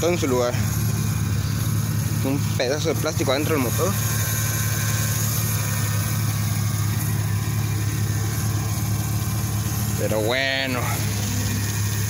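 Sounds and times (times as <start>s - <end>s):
man talking: 0.0s - 0.8s, 2.1s - 4.1s, 9.9s - 11.2s
car engine idling: 0.0s - 12.0s.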